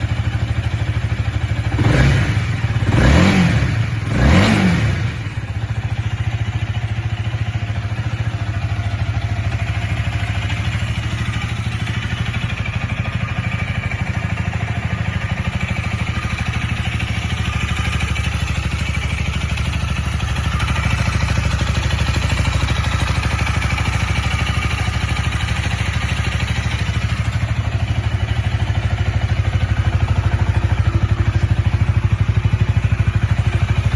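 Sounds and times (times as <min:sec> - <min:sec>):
motorcycle engine revving and idling: 0:00.0 - 0:33.9.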